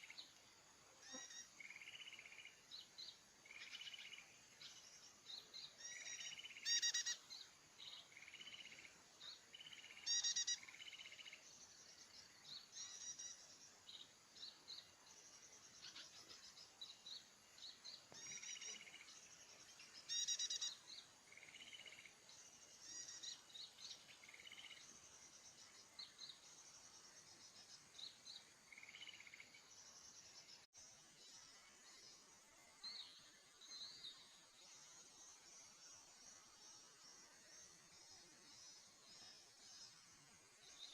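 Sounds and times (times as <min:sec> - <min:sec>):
small birds chirping: 0:00.0 - 0:40.9
bird trills: 0:05.8 - 0:08.7, 0:09.6 - 0:11.4, 0:20.1 - 0:20.8.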